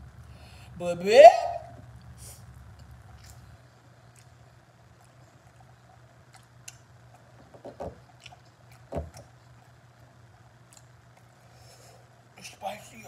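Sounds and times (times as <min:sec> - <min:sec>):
low steady hum: 0:00.0 - 0:13.0
wet chewing clicks and smacks: 0:02.7 - 0:11.4.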